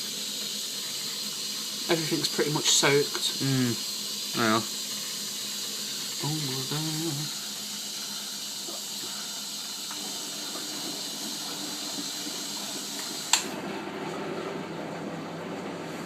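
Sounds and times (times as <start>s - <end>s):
water flowing in hiss: 0.0s - 13.5s
washing machine running: 0.0s - 16.0s
washing machine click: 12.9s - 13.6s.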